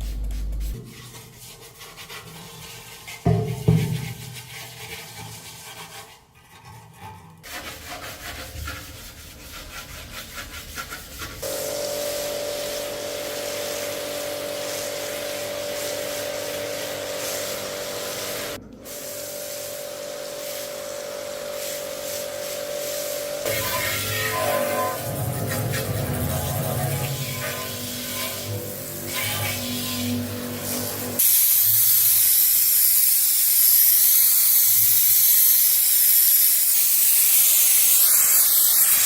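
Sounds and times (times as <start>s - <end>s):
rubbing or scraping: 0.0s - 19.0s, 21.6s - 31.2s.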